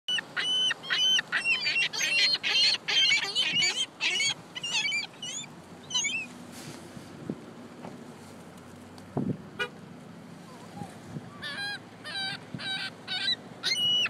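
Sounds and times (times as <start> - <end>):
gulls calling: 0.1 - 6.3, 10.5 - 14.0.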